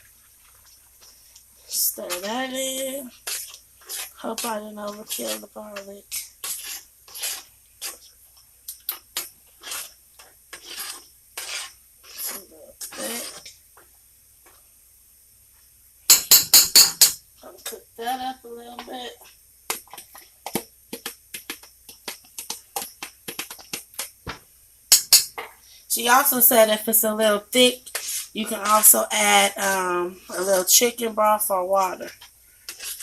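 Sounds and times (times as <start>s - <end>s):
spoon stirring in a pot: 0.2s - 14.6s, 18.8s - 24.2s, 27.6s - 33.0s.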